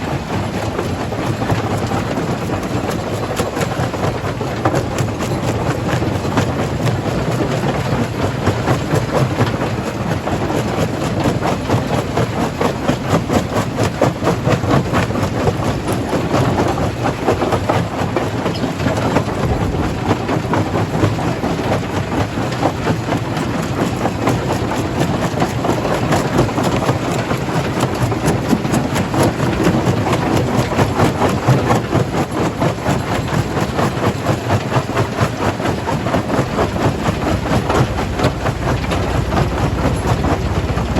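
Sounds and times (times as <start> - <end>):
low machine drone: 18.1 - 31.7, 34.9 - 40.9
rock rattling and clattering: 18.5 - 22.8, 34.6 - 40.9.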